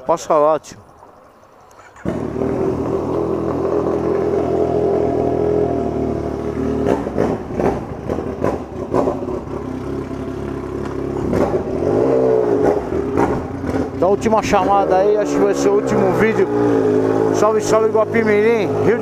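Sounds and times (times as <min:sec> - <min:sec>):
motorcycle engine idling and revving: 0:01.8 - 0:19.0.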